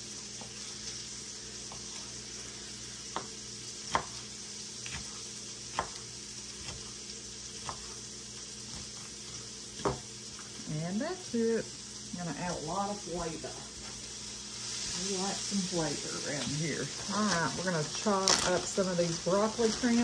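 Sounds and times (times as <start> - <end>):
vegetables sizzling in a pot: 0.0 - 20.0
knife tapping a wooden cutting board: 9.8 - 10.0.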